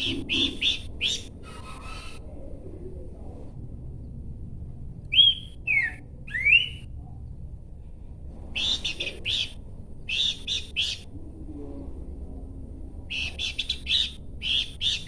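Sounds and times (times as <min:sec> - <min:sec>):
bird chattering: 0:00.0 - 0:02.3, 0:08.6 - 0:11.1, 0:13.1 - 0:15.0
bird whistled notes: 0:05.1 - 0:06.9.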